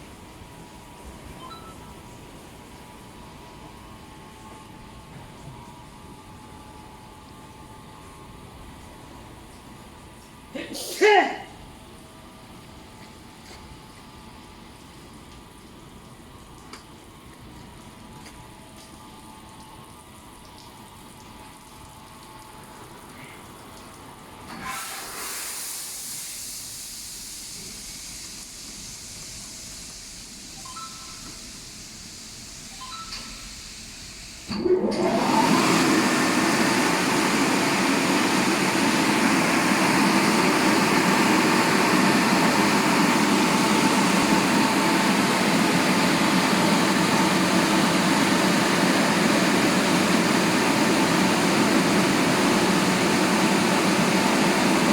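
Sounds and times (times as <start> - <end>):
car wash motor blasting: 24.5 - 30.9, 33.7 - 54.9.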